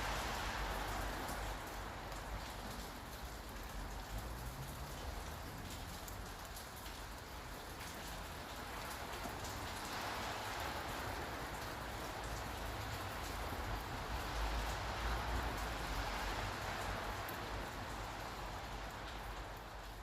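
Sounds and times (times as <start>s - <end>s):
low city rumble: 0.0s - 20.0s
rain on hard surfaces: 0.0s - 20.0s.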